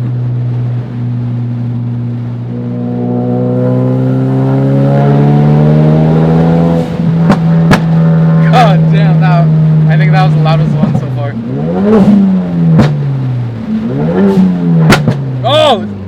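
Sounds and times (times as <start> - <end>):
car engine pulling hard: 0.0 - 16.0
loud exhaust cracks: 6.8 - 15.4.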